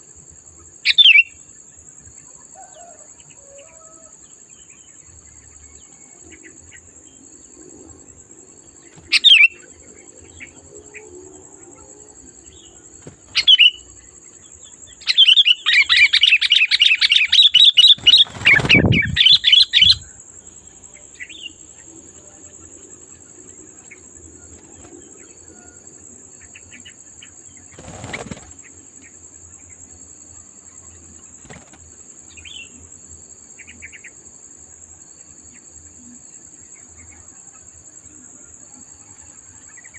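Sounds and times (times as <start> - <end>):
bird calling: 13.1 - 13.8, 15.1 - 20.0.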